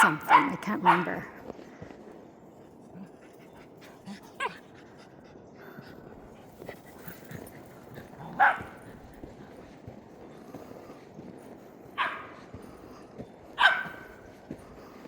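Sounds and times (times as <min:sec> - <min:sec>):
dog yipping: 0:00.0 - 0:01.2, 0:12.0 - 0:12.3, 0:13.6 - 0:14.0.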